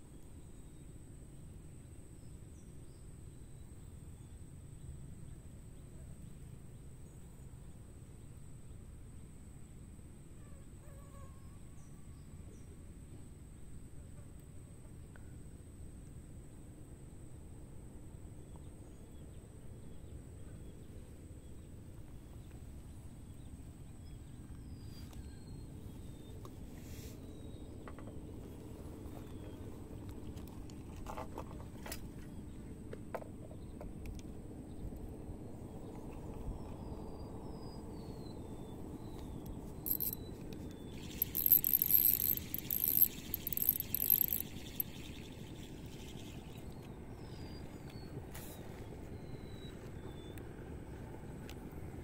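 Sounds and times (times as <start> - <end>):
insects trilling: 39.9 - 40.2, 40.8 - 46.8
thin high whine: 39.9 - 40.2, 40.9 - 47.5
faint short chirps: 39.9 - 40.3, 40.9 - 48.6.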